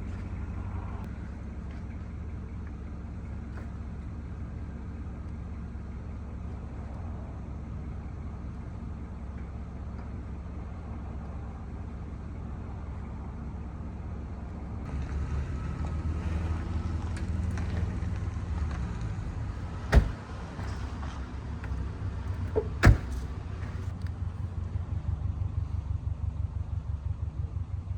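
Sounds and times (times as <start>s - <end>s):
low vehicle rumble: 0.0s - 27.9s
sharp loud thuds: 19.5s - 21.8s, 22.4s - 23.9s.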